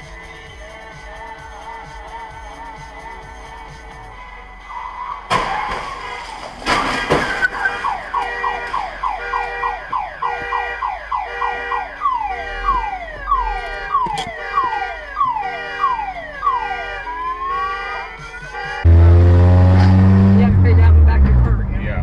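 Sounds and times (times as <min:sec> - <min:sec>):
car alarm chirps: 0:06.0 - 0:20.6.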